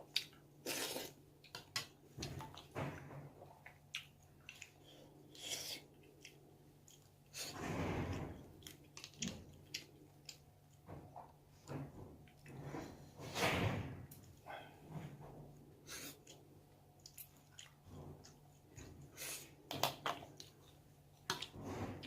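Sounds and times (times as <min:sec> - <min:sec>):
person chewing and mouth sounds: 0:00.0 - 0:02.7, 0:03.4 - 0:07.4, 0:08.5 - 0:10.8, 0:15.9 - 0:21.6.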